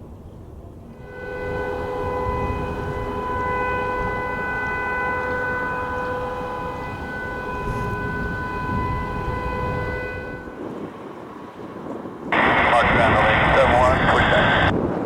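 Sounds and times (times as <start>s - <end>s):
turbine whine: 1.0s - 10.9s, 11.8s - 15.0s
low rumble: 12.3s - 15.0s.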